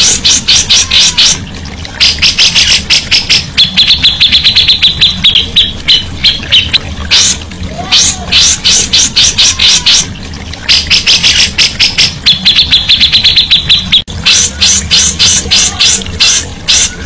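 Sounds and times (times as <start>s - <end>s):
songbird singing: 0.0s - 7.3s, 7.9s - 17.0s
high clear bird trill: 2.0s - 7.3s, 10.7s - 17.0s.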